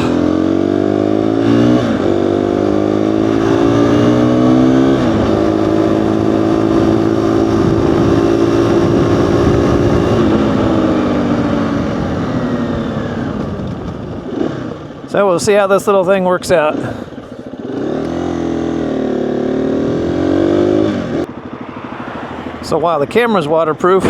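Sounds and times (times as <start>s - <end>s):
motorcycle engine accelerating: 0.0s - 22.6s
wind rushing: 5.0s - 11.7s.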